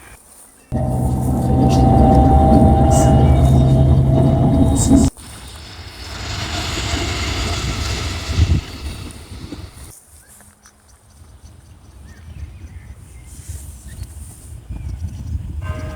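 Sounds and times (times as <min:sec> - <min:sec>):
loud low rumble with steady tones: 0:00.7 - 0:09.9
train passing: 0:00.7 - 0:09.9.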